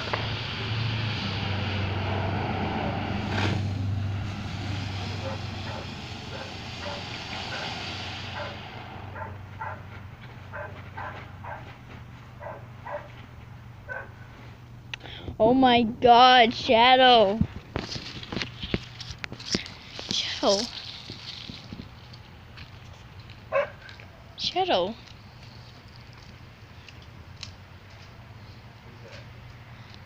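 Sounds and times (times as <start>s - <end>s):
sharp crack: 0.0s - 8.9s
firework fountain hissing: 0.0s - 9.2s, 18.7s - 22.1s
steady low hum: 0.0s - 30.0s
dog barking: 5.2s - 7.7s, 8.4s - 9.9s, 10.5s - 11.7s, 12.4s - 13.2s, 13.9s - 14.2s, 23.5s - 23.9s.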